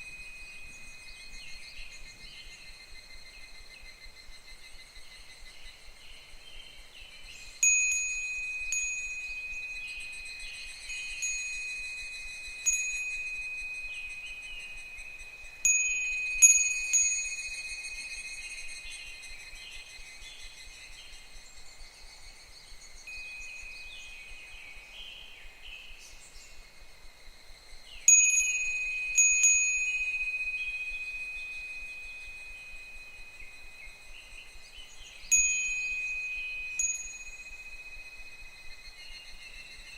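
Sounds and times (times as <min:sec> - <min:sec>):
wind bell ringing: 0:00.0 - 0:02.0, 0:07.6 - 0:19.3, 0:23.1 - 0:24.5, 0:28.1 - 0:39.8
cicadas calling: 0:00.0 - 0:39.9.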